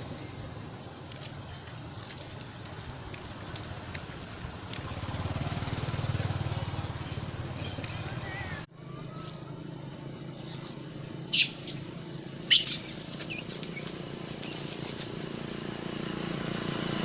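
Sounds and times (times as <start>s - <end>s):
monkey squealing: 10.4s - 11.8s, 12.4s - 14.0s.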